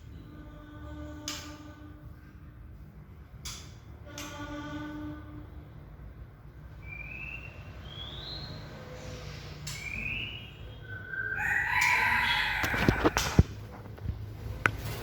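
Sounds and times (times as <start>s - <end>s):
bird whistled calls: 6.8s - 8.6s, 9.7s - 12.6s.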